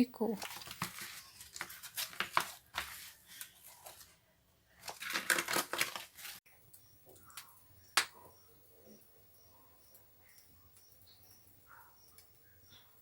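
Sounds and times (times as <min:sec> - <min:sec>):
rustling and crinkling: 0:00.2 - 0:06.4
faint high chirps: 0:06.5 - 0:13.0.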